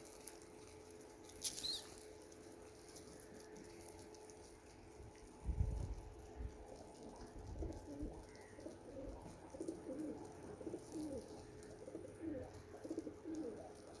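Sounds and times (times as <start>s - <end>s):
pigeons cooing: 1.4s - 2.0s, 5.5s - 14.0s.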